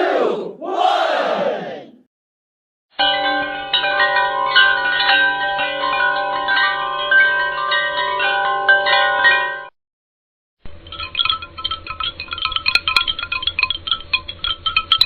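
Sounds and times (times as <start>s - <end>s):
tinkling chime music: 3.0s - 9.7s.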